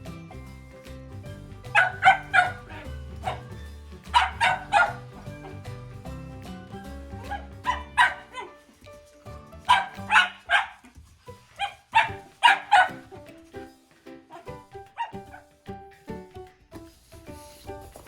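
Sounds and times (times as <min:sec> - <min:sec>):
puppy barking high: 0:01.6 - 0:05.7, 0:07.1 - 0:08.6, 0:09.6 - 0:10.9, 0:11.5 - 0:13.2, 0:14.3 - 0:15.5.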